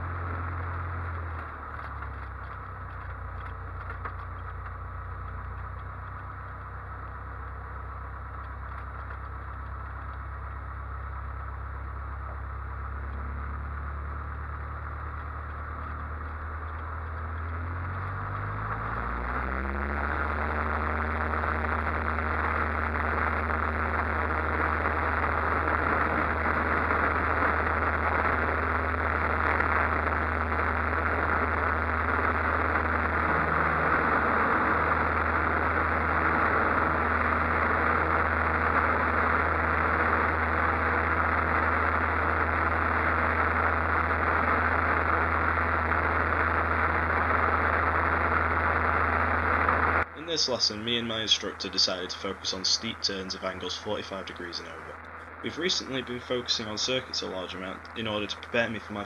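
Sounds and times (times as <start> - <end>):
airplane engine drone in cockpit: 0.0 - 59.0.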